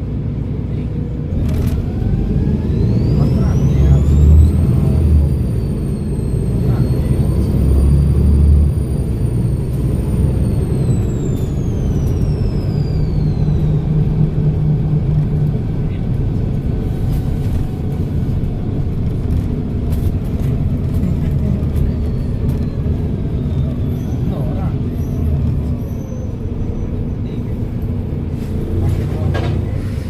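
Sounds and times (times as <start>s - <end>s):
diesel engine drone: 0.0s - 30.0s
turbocharger whistling: 1.8s - 15.0s, 21.8s - 27.2s.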